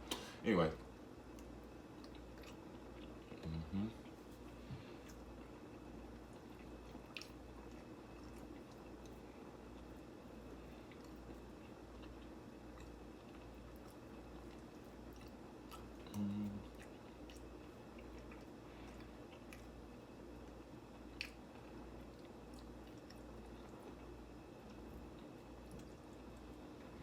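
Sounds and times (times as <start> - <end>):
person chewing: 1.3 - 10.0, 10.7 - 19.8, 20.4 - 24.0.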